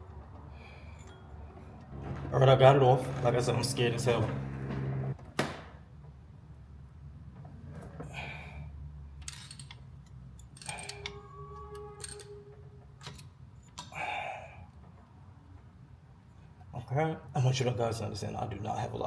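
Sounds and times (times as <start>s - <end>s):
pitched squeak: 1.9s - 5.2s
clicks and clinks of parts: 9.2s - 11.2s, 12.0s - 12.3s, 13.0s - 13.9s.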